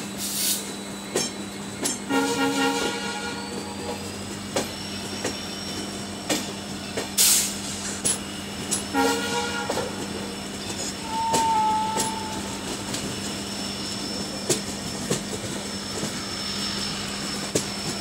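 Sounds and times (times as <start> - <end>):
train rumbling: 0.0 - 18.0
train horn toot: 2.1 - 4.0, 8.9 - 10.1, 11.0 - 12.7.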